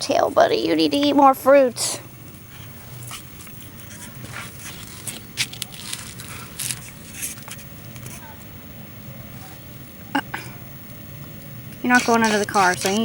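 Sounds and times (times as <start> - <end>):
rustling through wet grass: 2.4 - 8.0.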